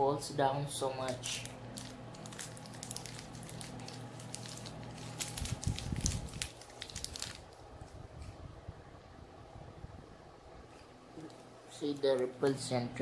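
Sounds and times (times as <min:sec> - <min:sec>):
plastic wrapper crinkling: 0:01.0 - 0:08.3.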